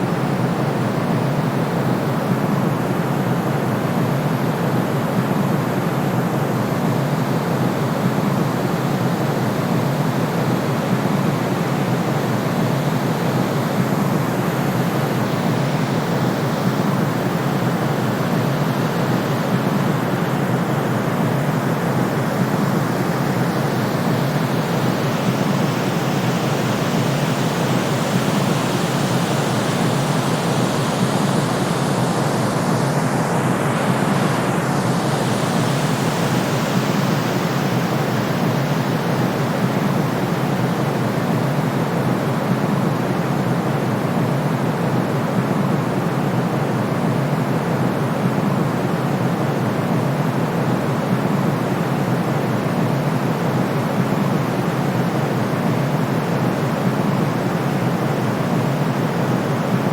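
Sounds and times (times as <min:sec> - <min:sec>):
steady white noise hiss: 0:00.0 - 0:59.9.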